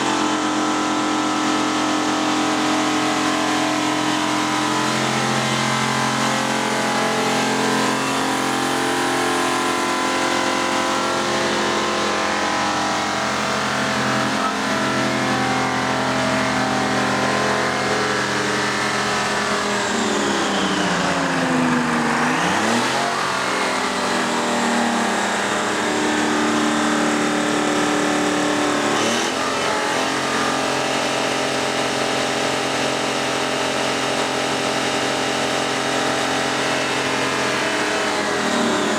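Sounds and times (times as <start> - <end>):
diesel engine at high revs: 0.0 - 38.9.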